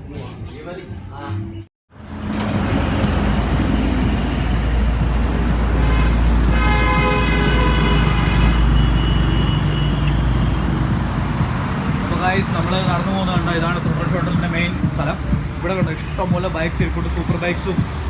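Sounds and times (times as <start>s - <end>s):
road traffic rumble: 0.0s - 18.0s
vehicle horn: 5.7s - 10.2s.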